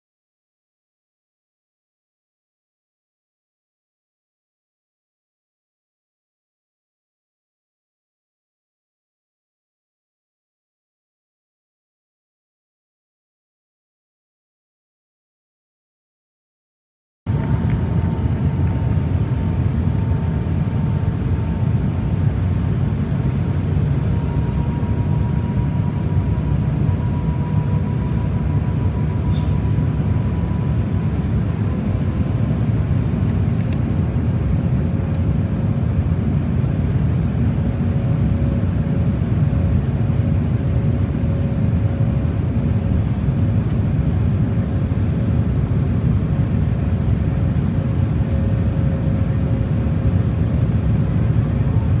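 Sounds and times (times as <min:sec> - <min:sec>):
airplane cabin engine roar: 0:17.3 - 0:52.0
faint engine tones: 0:17.3 - 0:52.0.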